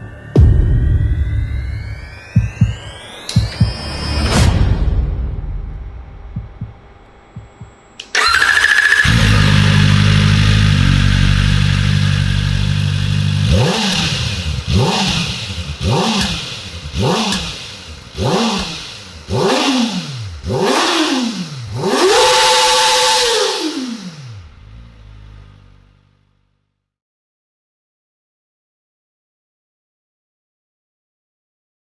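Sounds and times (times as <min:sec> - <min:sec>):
motorcycle engine revving: 0:06.0 - 0:26.6.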